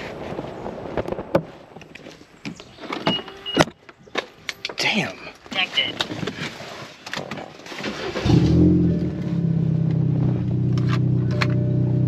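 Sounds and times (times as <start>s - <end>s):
car engine starting and idling: 7.7s - 12.0s.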